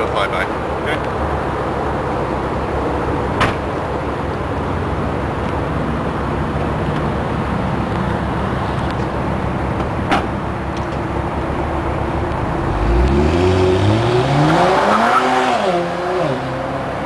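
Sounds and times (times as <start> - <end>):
car engine idling: 0.0 - 13.2.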